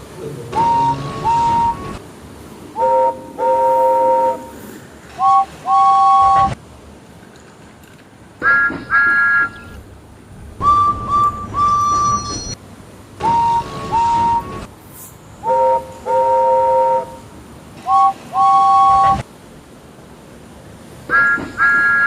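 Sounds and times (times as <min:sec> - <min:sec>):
toy train whistle toots: 0:00.6 - 0:02.0, 0:02.8 - 0:04.6, 0:05.2 - 0:06.6, 0:08.4 - 0:09.8, 0:10.6 - 0:12.6, 0:13.2 - 0:14.7, 0:15.4 - 0:17.2, 0:17.8 - 0:19.2, 0:21.1 - 0:22.0.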